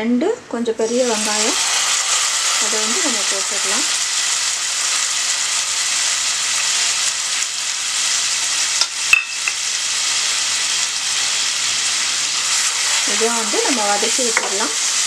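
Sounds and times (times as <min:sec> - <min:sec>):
paste sizzling in a pan: 0:00.9 - 0:15.0.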